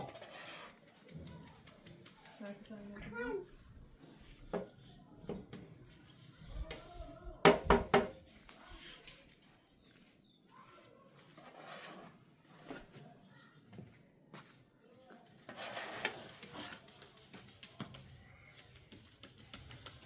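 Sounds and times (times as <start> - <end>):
faint clicks and knocks: 0.6 - 3.3.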